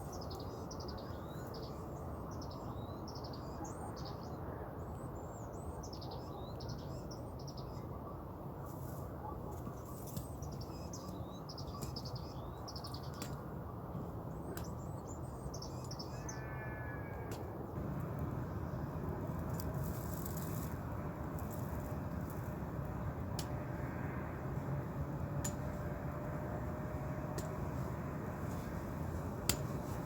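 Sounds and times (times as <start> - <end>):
songbirds chirping: 0.0 - 30.0
low background rumble: 17.5 - 30.0.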